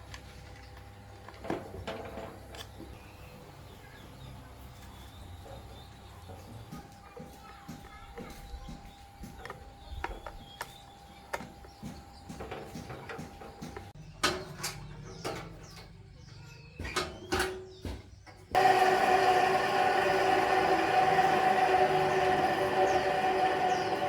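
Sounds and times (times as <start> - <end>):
machine running loudly: 18.6 - 24.0.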